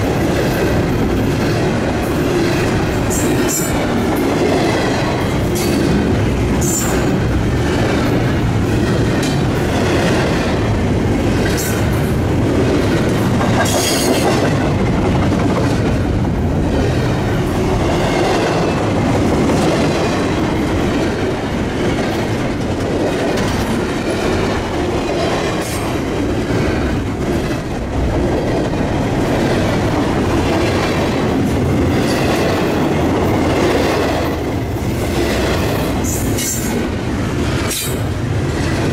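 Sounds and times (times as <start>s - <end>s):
clickety-clack over rail joints: 0.0s - 38.9s
train wheels rumbling on rail: 0.0s - 38.9s.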